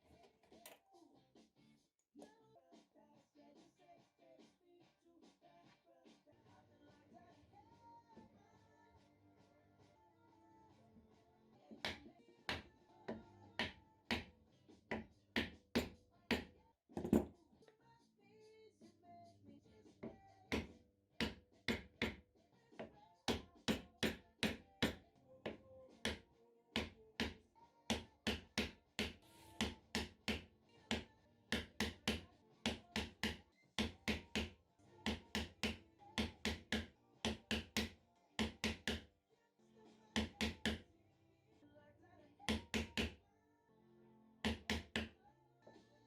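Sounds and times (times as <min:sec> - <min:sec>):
chisel knocking into wood: 0:15.4 - 0:17.3.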